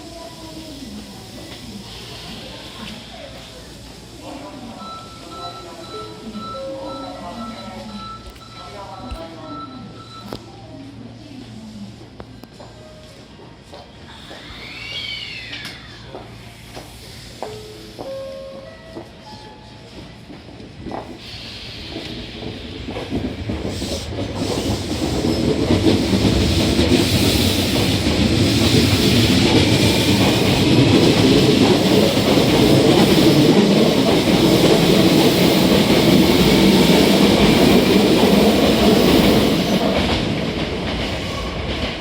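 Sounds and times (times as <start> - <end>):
train wheels clattering on rails: 19.9 - 42.0.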